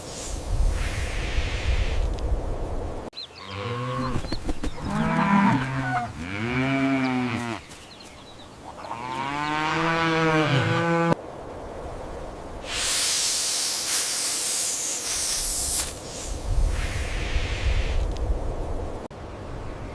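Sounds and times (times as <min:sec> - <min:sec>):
hissing noise: 0:00.0 - 0:02.5, 0:12.6 - 0:18.4
cow mooing: 0:03.4 - 0:04.2, 0:04.9 - 0:07.6, 0:08.9 - 0:11.2.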